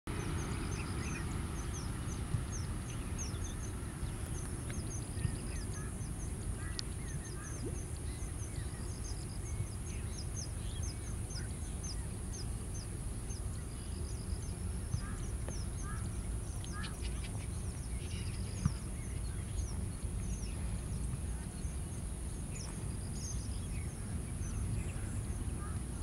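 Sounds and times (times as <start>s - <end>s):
fainter bird calls: 15.0s - 18.6s.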